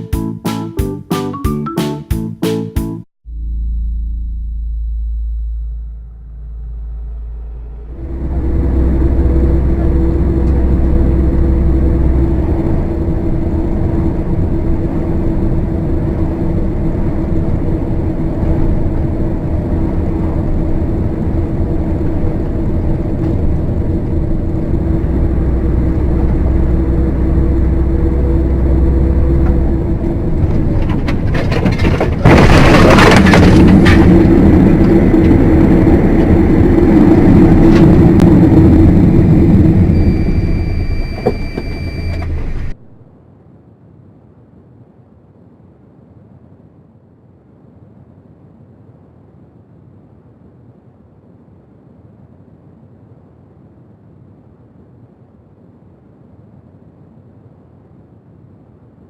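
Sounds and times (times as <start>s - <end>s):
car engine and road noise: 4.4s - 43.2s.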